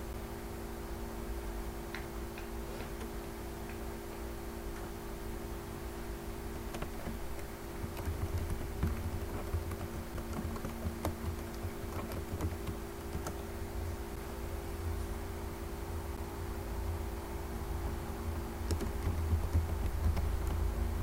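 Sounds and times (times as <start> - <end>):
steady low hum: 0.0 - 21.0
keyboard keystroke clicks: 18.6 - 20.7.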